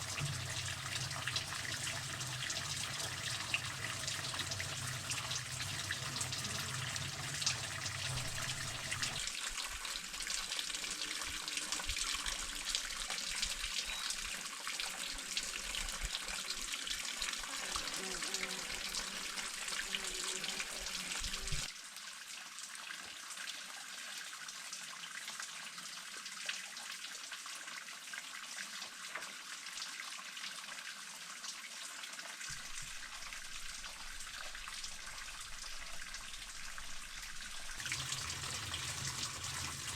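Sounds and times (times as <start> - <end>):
running water rushing: 0.0 - 21.7, 32.5 - 39.9.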